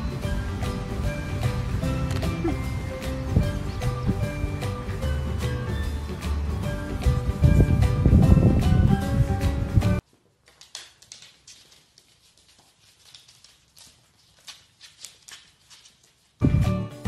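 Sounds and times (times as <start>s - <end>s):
loud background music: 0.0s - 10.0s
dog claws tapping on wooden floor: 10.4s - 16.2s.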